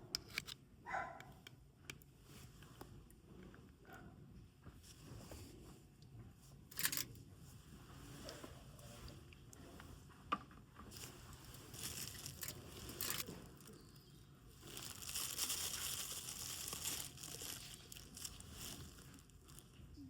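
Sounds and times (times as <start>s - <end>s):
crinkling and rustling: 4.7s - 20.0s.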